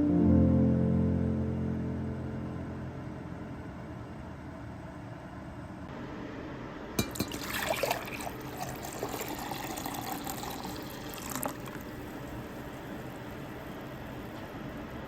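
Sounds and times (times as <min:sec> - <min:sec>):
water flowing: 0:07.0 - 0:11.9.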